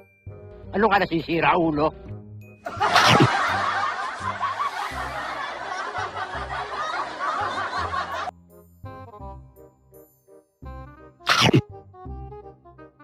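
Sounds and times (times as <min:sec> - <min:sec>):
canned laughter: 0:02.7 - 0:08.3.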